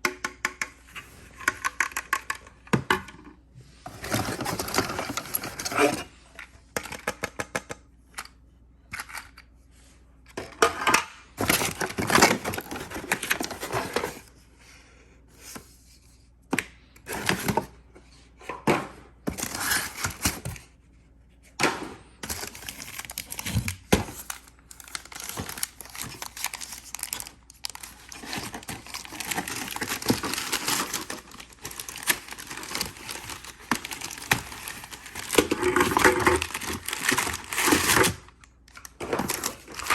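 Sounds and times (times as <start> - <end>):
clicks and knocks of handled parts: 6.4 - 9.5
plastic and paper crinkling: 11.4 - 14.3, 22.2 - 39.9.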